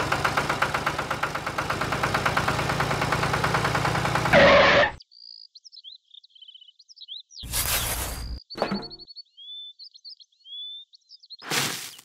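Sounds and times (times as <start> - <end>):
tractor engine running: 0.0 - 5.0
faint bird chirps: 5.0 - 11.4.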